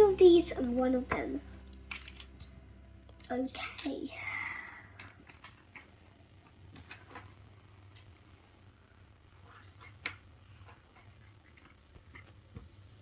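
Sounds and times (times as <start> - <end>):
plastic bricks clicking: 1.9 - 2.5.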